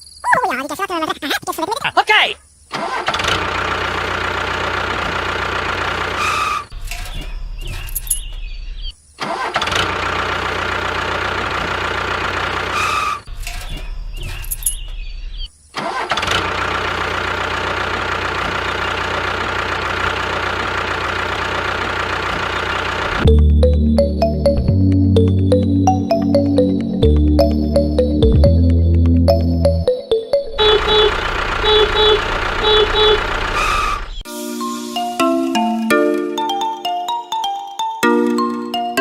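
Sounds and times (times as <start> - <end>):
small tractor motor running: 2.9 - 6.7, 9.5 - 13.3, 15.9 - 23.3, 30.6 - 34.2.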